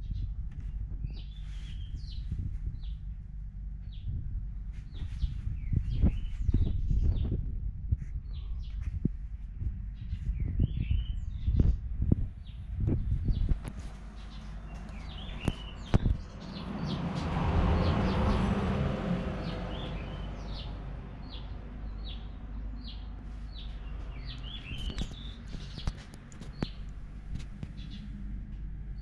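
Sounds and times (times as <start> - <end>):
low steady hum: 0.0 - 29.0
small birds chirping: 0.0 - 29.0.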